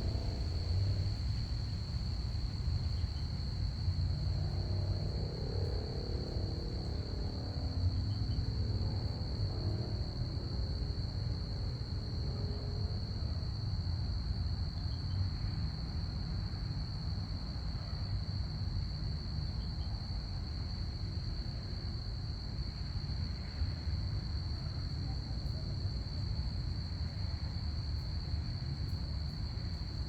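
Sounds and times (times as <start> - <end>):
faint hum: 0.0 - 13.4
crickets chirping: 0.0 - 30.0.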